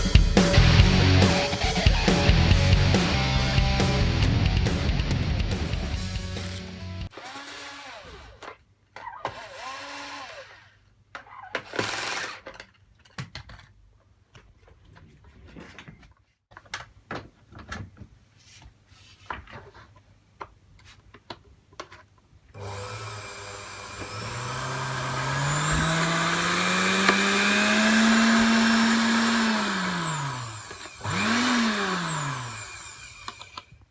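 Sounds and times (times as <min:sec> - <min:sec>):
blender motor whining: 0:09.3 - 0:10.6, 0:22.6 - 0:33.8
clicks and knocks of handling: 0:12.5 - 0:18.2, 0:19.2 - 0:22.3.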